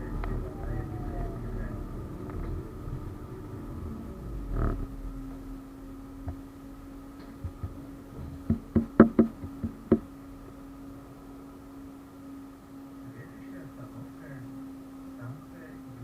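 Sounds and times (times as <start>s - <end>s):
tram humming: 0.0s - 16.0s
sharp knocks: 7.2s - 10.1s.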